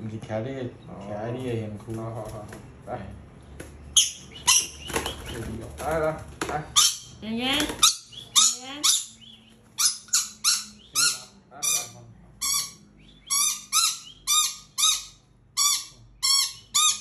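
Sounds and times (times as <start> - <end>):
small bird squawking: 3.9 - 5.7, 6.7 - 17.0.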